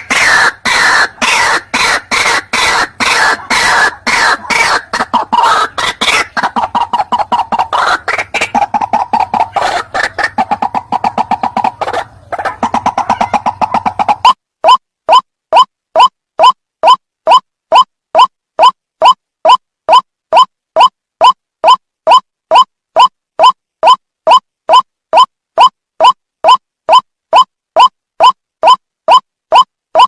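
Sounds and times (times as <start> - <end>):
waterhen harsh croaking: 0.0 - 14.3.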